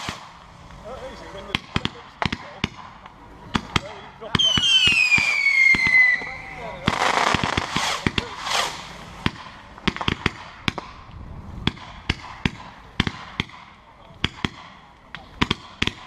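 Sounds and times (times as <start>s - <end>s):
firework cracks and bangs: 0.0s - 0.6s, 1.5s - 11.0s
firework hissing rush: 4.5s - 10.2s.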